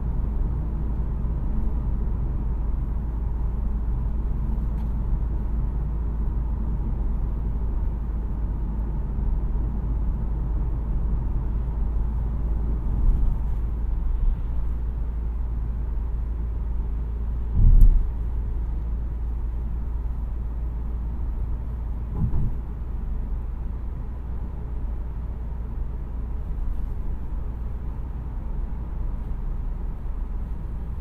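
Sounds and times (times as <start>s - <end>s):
car engine rumble: 0.0s - 31.0s
loud thump: 17.5s - 18.1s, 22.1s - 22.6s.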